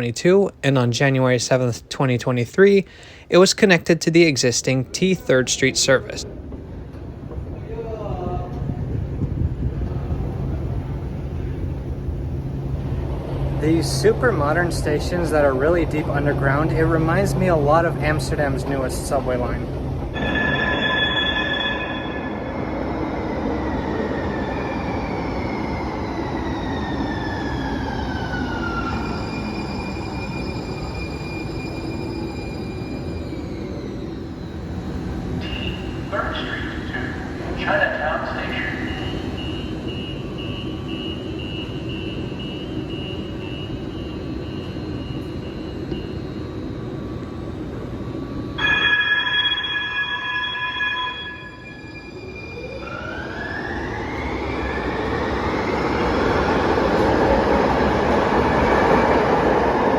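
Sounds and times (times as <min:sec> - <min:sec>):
train rumble: 0:00.0 - 0:59.9
repeating high beep: 0:20.2 - 0:22.8, 0:48.6 - 0:52.6
steel wheel squeal: 0:20.2 - 0:23.2, 0:48.6 - 0:52.9.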